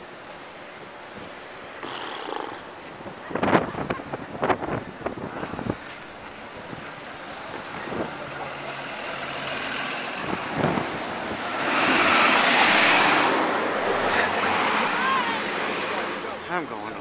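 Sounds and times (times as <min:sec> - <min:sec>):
street traffic noise: 0:00.0 - 0:17.0
large vehicle passing: 0:08.6 - 0:16.4.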